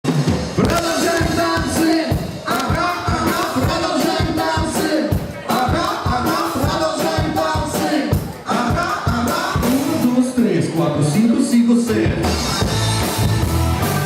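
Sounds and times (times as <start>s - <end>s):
live band playing pop song: 0.0s - 14.0s
person singing: 0.6s - 10.4s.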